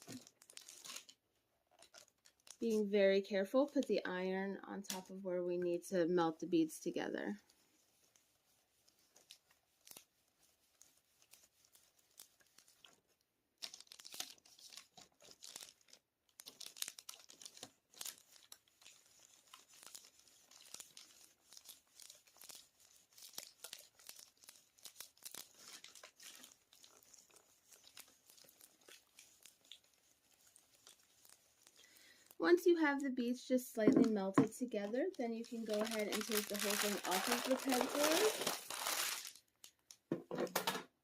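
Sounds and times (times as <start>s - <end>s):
paper crinkling under iron: 0.0s - 1.2s, 1.8s - 2.8s, 7.4s - 32.4s, 34.8s - 39.5s.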